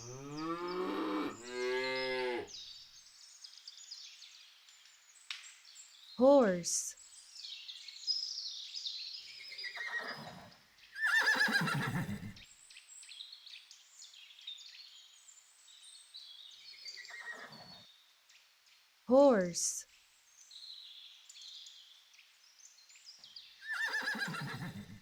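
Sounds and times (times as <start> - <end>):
horse whinnying: 9.7 - 12.4, 17.0 - 17.8, 23.6 - 25.0.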